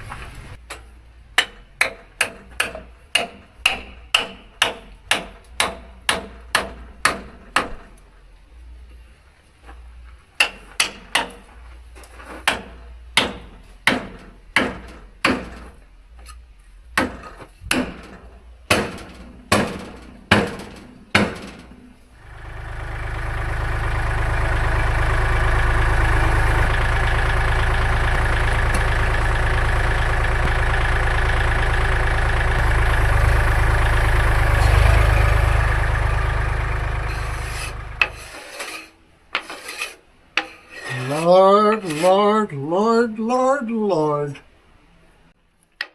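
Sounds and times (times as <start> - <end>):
sawmill engine running: 22.2 - 38.4.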